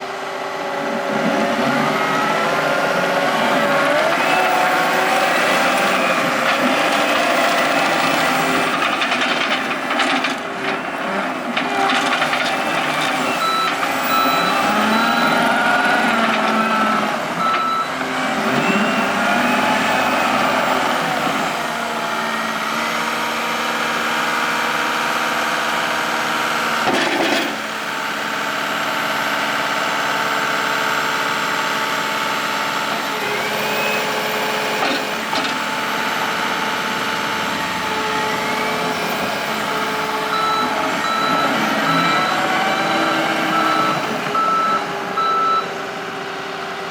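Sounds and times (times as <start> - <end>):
diesel engine running: 0.0 - 46.9
reversing alarm beeping: 11.9 - 20.9, 38.5 - 45.7.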